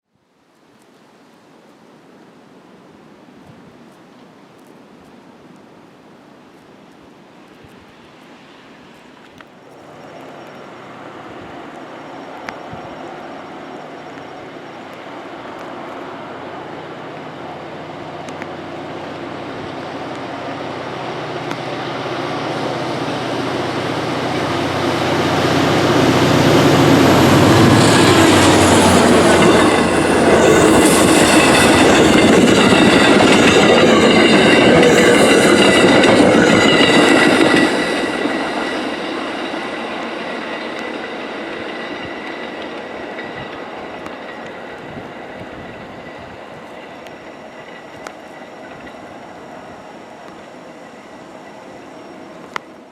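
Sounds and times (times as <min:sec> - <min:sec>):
diesel locomotive engine hum: 0:08.7 - 0:52.9
wheels clicking over rail joints: 0:23.6 - 0:51.0
high-pitched wheel ringing: 0:25.1 - 0:43.7.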